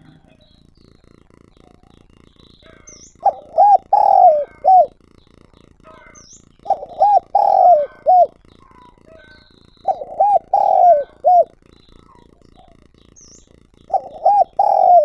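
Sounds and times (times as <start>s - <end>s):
small birds chirping: 0.0s - 15.0s
dove cooing: 2.8s - 5.0s, 6.0s - 15.0s.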